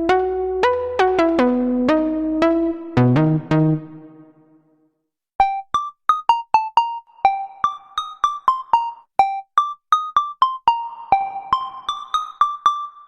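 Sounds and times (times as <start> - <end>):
bright plinking synth notes: 0.0 - 4.3
synthesizer melodic line: 0.0 - 4.4.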